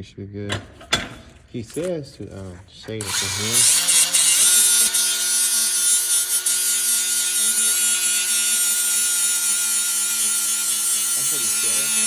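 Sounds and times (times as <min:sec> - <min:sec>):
power tool whining on metal: 0:02.9 - 0:12.0.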